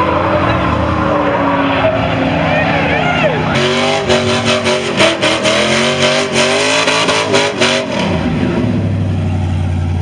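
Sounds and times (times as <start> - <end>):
truck engine revving and idling: 0.0 - 10.0.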